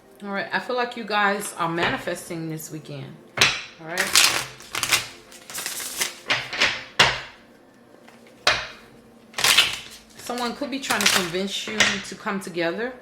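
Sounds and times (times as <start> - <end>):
cards being shuffled: 4.0 - 7.4, 9.4 - 11.9.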